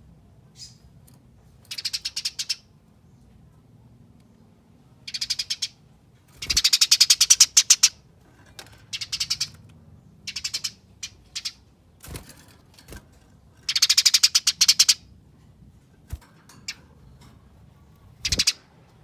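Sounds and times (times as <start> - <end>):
sparrow chattering: 0.6 - 0.8, 1.7 - 2.7, 5.0 - 5.8, 6.4 - 8.1, 8.9 - 11.7, 13.6 - 15.1, 18.2 - 18.7.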